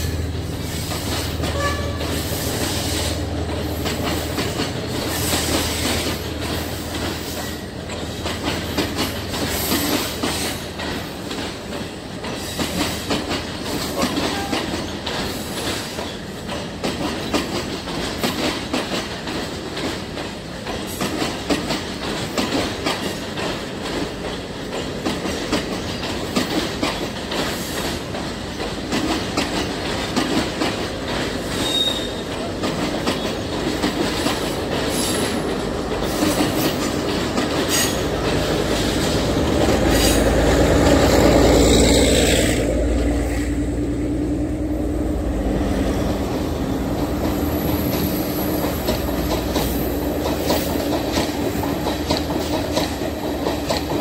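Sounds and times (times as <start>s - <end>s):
train wheels rumbling on rails: 0.0s - 54.0s
wheel squeals: 31.5s - 32.3s.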